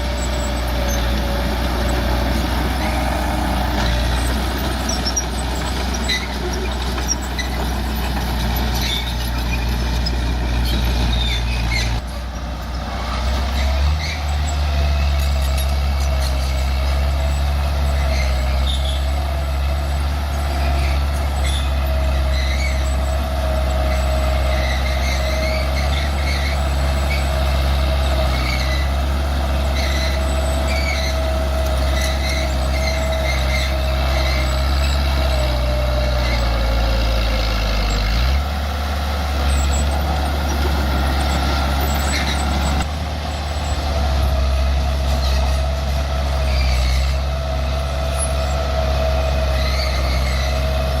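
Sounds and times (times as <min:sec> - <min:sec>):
bulldozer diesel engine: 0:00.0 - 0:51.0.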